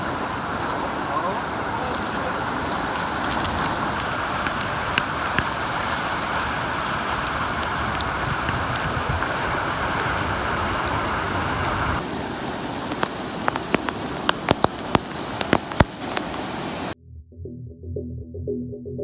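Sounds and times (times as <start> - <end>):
heavy rain rushing: 0.0 - 17.0
music: 17.0 - 19.0.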